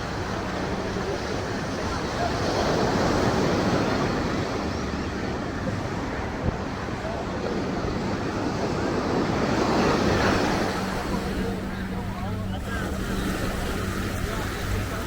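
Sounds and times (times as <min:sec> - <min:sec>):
faint voices: 0:00.0 - 0:15.0
surf: 0:00.0 - 0:15.0
road traffic: 0:09.4 - 0:15.0.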